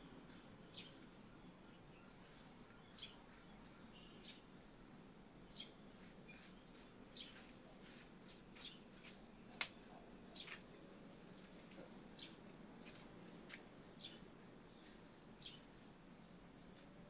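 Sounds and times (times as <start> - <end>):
faint bird chirps: 0.2 - 4.6.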